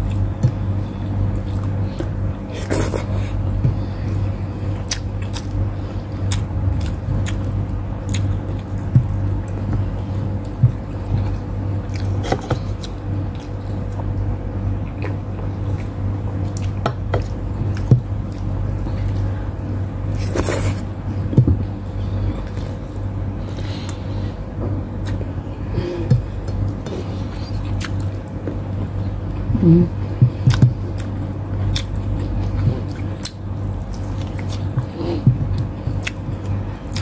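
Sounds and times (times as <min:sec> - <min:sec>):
steady low hum: 0:00.0 - 0:37.0
chewing and mouth smacking: 0:04.8 - 0:05.6, 0:06.2 - 0:14.2, 0:26.1 - 0:29.0, 0:30.3 - 0:37.0.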